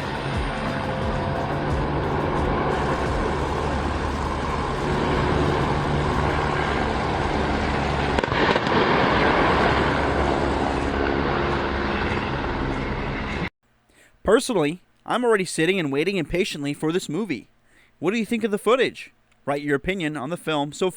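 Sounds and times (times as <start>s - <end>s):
train engine hum: 0.0s - 8.2s
loud rushing noise: 0.0s - 12.4s.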